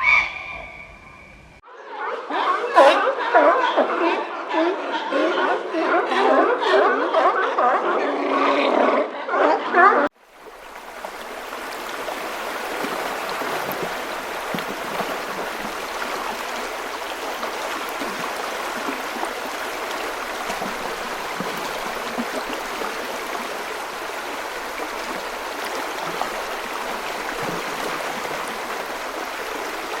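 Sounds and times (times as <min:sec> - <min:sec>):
running water rushing: 0:10.1 - 0:30.0.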